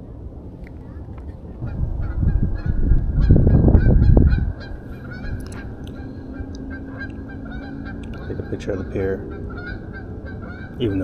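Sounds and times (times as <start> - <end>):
faint high drone: 0.0 - 11.0
geese honking: 0.0 - 11.0
low rumble on microphone: 0.0 - 11.0.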